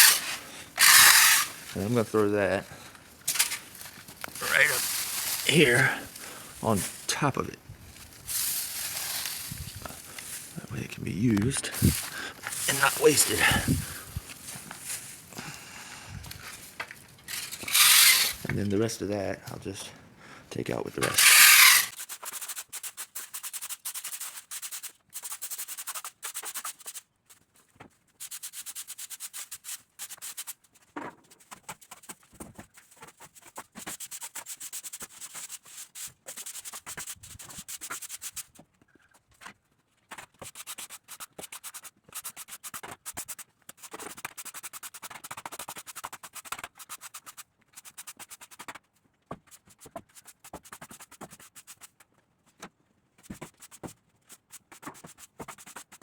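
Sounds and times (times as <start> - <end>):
broom sweeping the floor: 0.0 - 2.3, 3.2 - 7.2, 7.8 - 10.8, 11.6 - 18.5, 21.0 - 27.0, 28.2 - 30.6, 33.4 - 38.5, 40.4 - 48.6.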